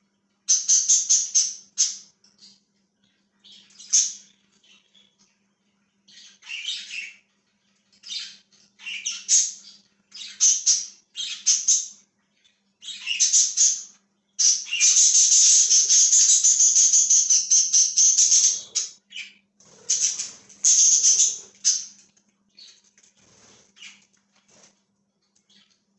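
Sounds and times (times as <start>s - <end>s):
budgerigars chirping and chattering: 0.5s - 5.4s, 6.0s - 24.7s, 25.5s - 25.8s.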